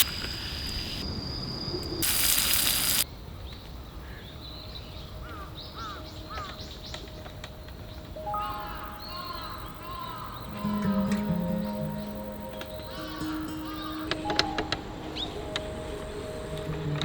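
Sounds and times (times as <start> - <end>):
loud hiss bursts: 0.0 - 1.1, 1.8 - 3.0
bird chirping: 4.4 - 17.0.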